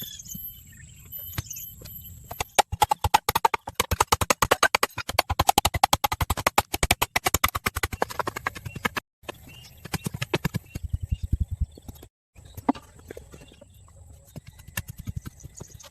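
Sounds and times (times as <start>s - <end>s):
rapid sharp taps: 2.4s - 9.0s.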